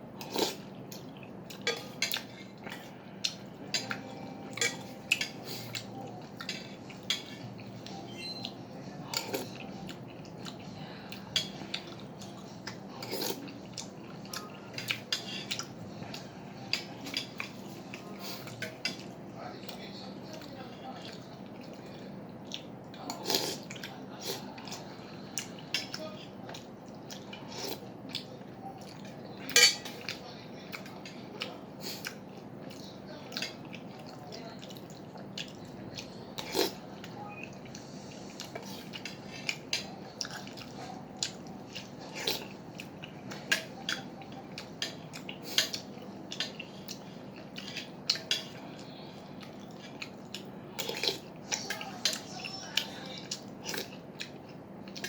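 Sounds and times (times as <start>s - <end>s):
utensils clinking on soup bowl: 1.5s - 2.9s, 3.6s - 9.6s, 29.0s - 30.2s.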